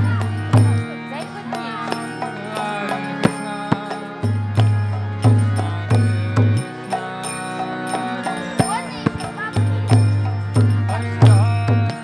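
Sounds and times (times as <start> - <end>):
bass drum beats: 0.0 - 1.0, 8.6 - 12.0
devotional music with chords: 0.0 - 12.0
person singing: 0.0 - 12.0
sharp percussive hits: 0.0 - 12.0.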